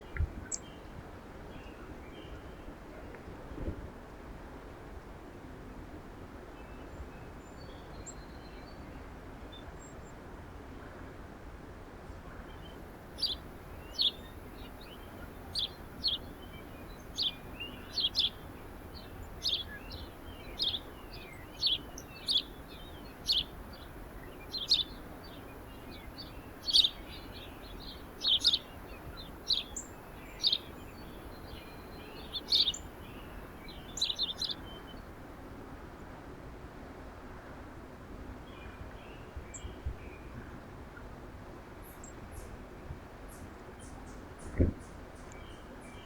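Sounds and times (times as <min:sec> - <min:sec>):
songbirds chirping: 0:12.3 - 0:35.5, 0:43.3 - 0:46.0.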